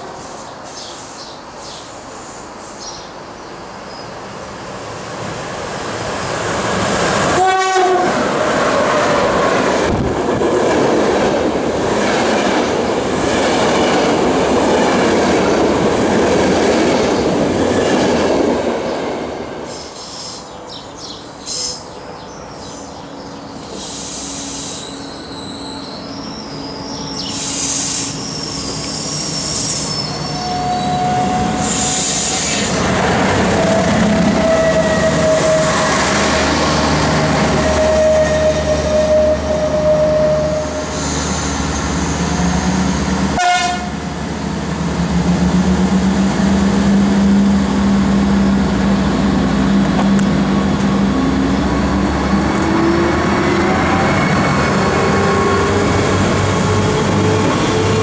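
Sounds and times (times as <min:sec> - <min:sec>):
train engine droning: 0:00.0 - 0:58.0
train horn tone: 0:07.3 - 0:08.2, 0:30.2 - 0:32.5, 0:33.5 - 0:36.3, 0:37.4 - 0:40.9, 0:43.3 - 0:44.0
train wheel squeals: 0:23.5 - 0:32.8, 0:33.5 - 0:36.0, 0:37.4 - 0:43.2.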